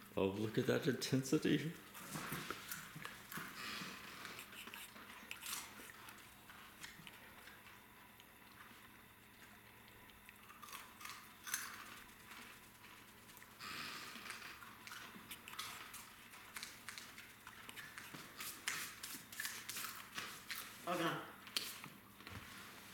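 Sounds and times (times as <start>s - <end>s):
crunching and chewing snacks: 1.7s - 22.0s.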